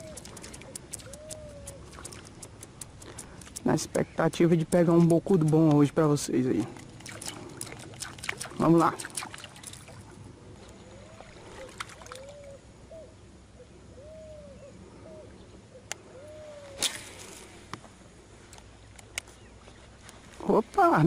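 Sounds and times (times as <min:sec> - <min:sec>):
bird hooting calls: 0:00.0 - 0:02.4, 0:10.6 - 0:17.2.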